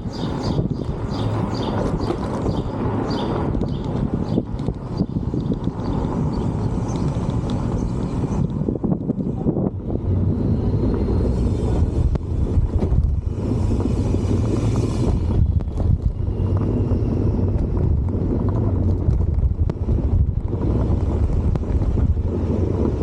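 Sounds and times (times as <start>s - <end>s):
vehicle rumbling in motion: 0.0s - 23.0s
wind buffeting microphone: 0.0s - 23.0s.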